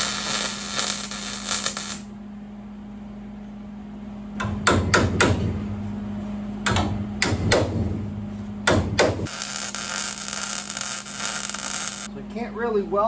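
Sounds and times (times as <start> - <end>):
high hiss: 0.0 - 2.1
low rumble hum: 0.0 - 13.0
sharp knocks on steel: 6.7 - 7.9, 8.6 - 9.3.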